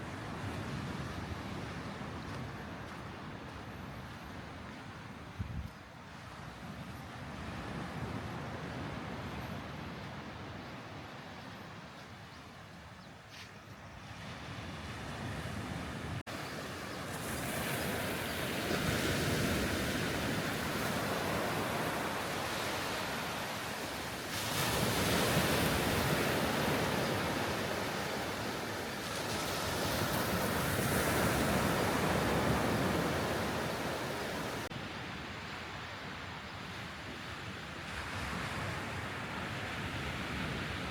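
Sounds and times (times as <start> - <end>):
wind rumbling on microphone: 0.0 - 12.4
sea waves washing in: 14.2 - 40.9.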